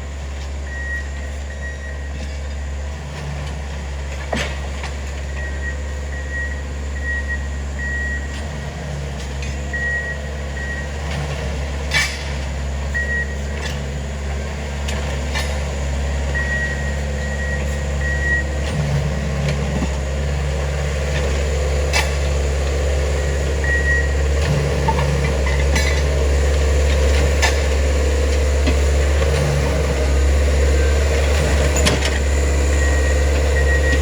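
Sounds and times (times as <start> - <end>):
diesel engines running: 0.0 - 34.0
backup alarm beeping: 5.4 - 8.3, 16.3 - 18.6, 23.2 - 24.3, 30.2 - 34.0.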